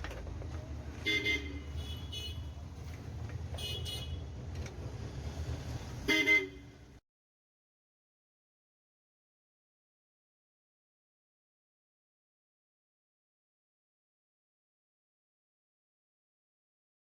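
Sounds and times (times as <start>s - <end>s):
vehicle horns tooting: 1.0s - 2.6s, 3.6s - 4.4s, 6.0s - 6.8s.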